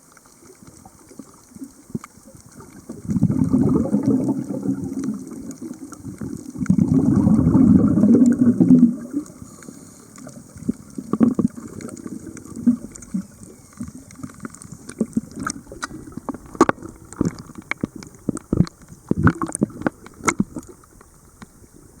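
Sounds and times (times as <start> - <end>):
underwater clicks and crackles: 0.0 - 22.0
diver's exhaled bubbles rushing: 2.6 - 9.4, 10.4 - 20.7.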